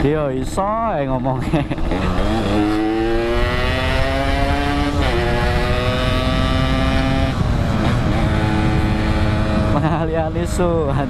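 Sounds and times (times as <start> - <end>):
wind rumble on microphone: 0.0 - 11.0
motorcycle engine pulling hard: 1.5 - 10.0.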